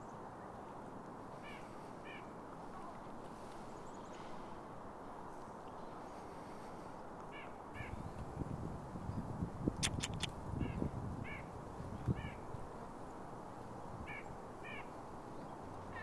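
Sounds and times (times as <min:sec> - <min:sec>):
wind noise: 0:07.7 - 0:16.0
bird harsh calls: 0:09.8 - 0:11.4.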